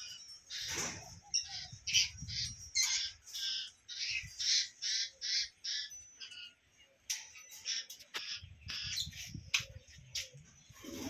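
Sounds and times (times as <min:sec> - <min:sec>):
bird squawking: 0:00.0 - 0:06.5.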